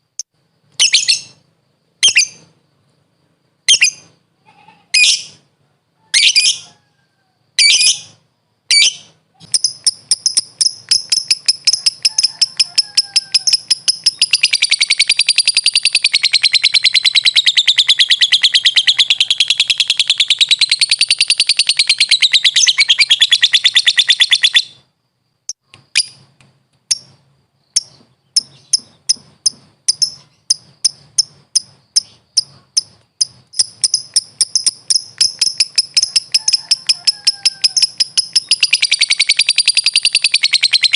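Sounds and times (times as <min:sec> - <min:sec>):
lovebird shrill calls: 0:00.8 - 0:01.4, 0:02.0 - 0:02.4, 0:08.7 - 0:24.8, 0:27.8 - 0:40.9
quick ticking bird notes: 0:08.8 - 0:24.7, 0:25.5 - 0:40.9
lovebird fast chatter: 0:09.4 - 0:24.7, 0:27.8 - 0:40.9.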